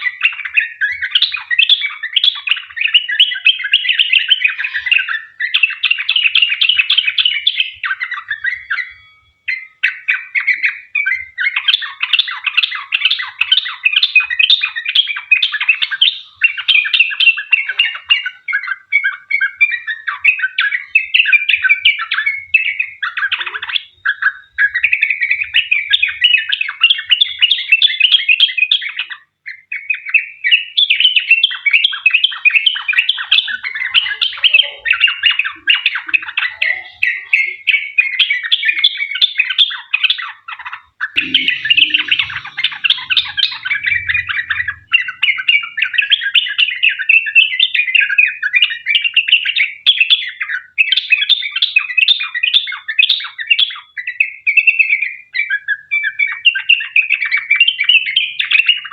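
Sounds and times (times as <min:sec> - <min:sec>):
bird singing bubbling notes: 0:00.0 - 0:51.3.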